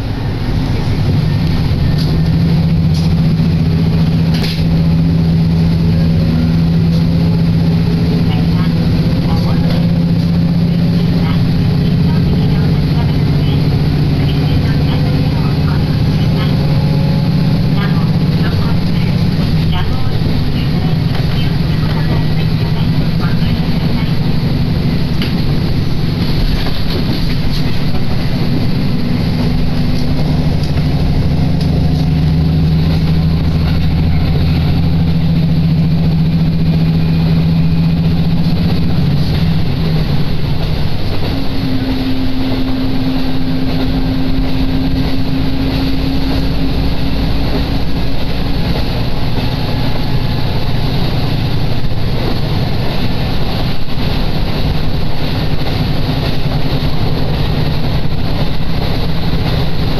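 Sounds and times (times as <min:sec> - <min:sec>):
diesel engine drone: 0:00.0 - 0:59.9
train carriage running noise: 0:00.0 - 0:59.9.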